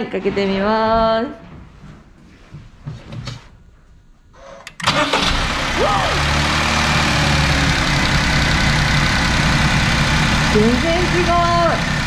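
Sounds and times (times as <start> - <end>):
car engine starting and idling: 4.7 - 12.0.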